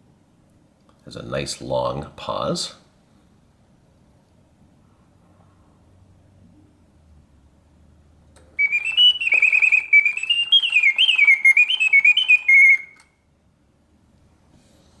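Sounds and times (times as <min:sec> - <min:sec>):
mechanical bird whistle warbling: 0:08.6 - 0:13.0.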